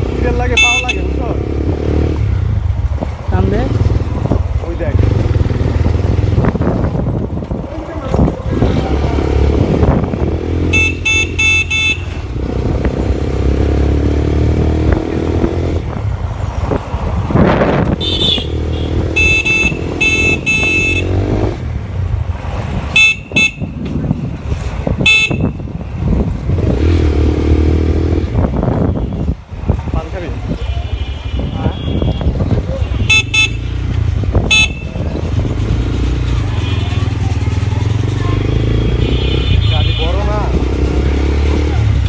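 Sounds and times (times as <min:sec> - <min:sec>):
vehicle horns beeping: 0:00.5 - 0:01.2, 0:10.6 - 0:12.3, 0:17.9 - 0:21.3, 0:22.9 - 0:23.8, 0:25.0 - 0:25.7, 0:30.6 - 0:35.0, 0:38.9 - 0:40.3
motorcycle engine running: 0:32.4 - 0:39.5.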